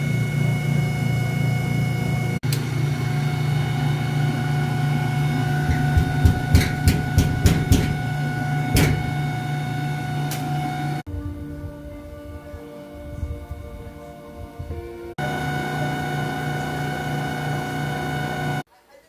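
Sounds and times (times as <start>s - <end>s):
washing machine hum and whine: 0.0s - 11.1s, 13.0s - 18.7s
irregular sharp knocks: 5.7s - 8.0s, 8.7s - 9.2s.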